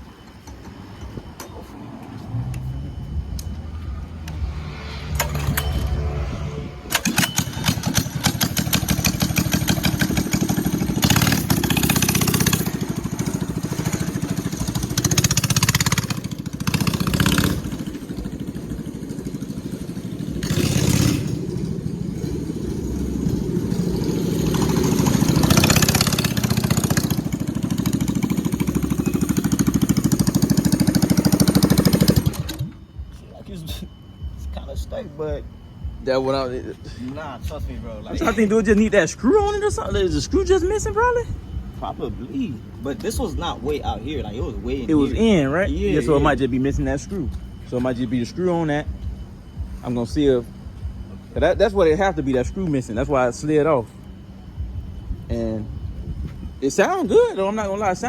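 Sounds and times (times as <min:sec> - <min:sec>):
mini bike engine revving: 0:02.3 - 0:32.8
man talking: 0:33.2 - 0:48.9, 0:51.4 - 0:53.9.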